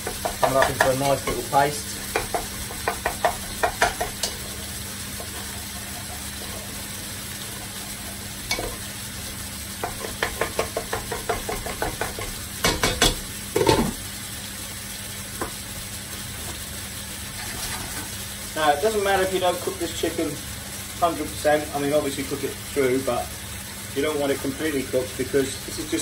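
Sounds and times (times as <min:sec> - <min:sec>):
chicken sizzling in a frying pan: 0:00.0 - 0:26.0
cookware knocks: 0:09.8 - 0:14.0.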